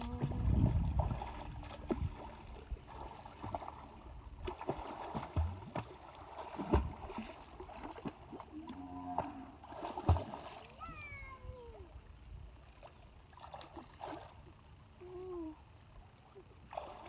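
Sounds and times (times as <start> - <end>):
knocks and splashes: 0.0 - 11.4, 12.8 - 14.4.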